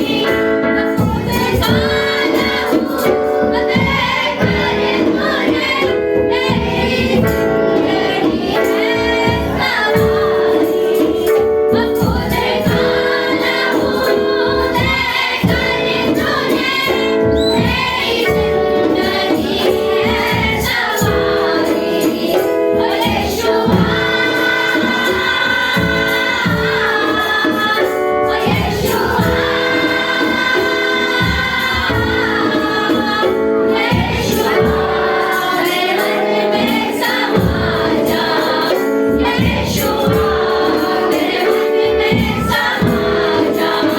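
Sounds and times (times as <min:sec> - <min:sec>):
instrumental accompaniment with beat: 0:00.0 - 0:43.9
women singing worship song: 0:00.0 - 0:43.9.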